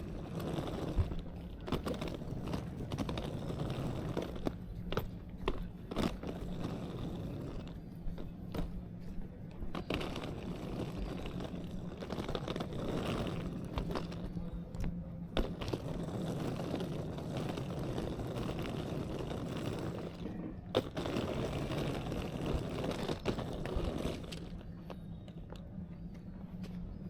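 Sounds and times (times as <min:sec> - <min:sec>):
footsteps on pavement: 0:00.0 - 0:26.9
traffic rumble: 0:00.0 - 0:27.0
wheels clicking on pavement: 0:00.0 - 0:27.0.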